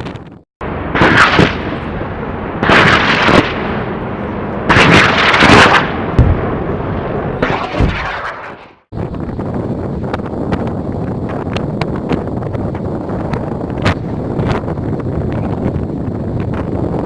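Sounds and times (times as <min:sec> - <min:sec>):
wind buffeting microphone: 0:08.9 - 0:17.0.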